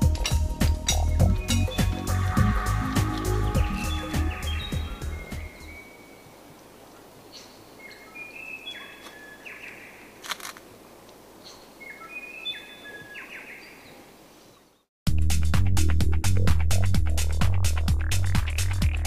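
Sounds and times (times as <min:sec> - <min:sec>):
bird singing: 0:00.0 - 0:06.4, 0:07.3 - 0:10.1, 0:11.4 - 0:14.9
steady outdoor hiss: 0:00.0 - 0:14.9
electronic dance music: 0:00.6 - 0:05.6.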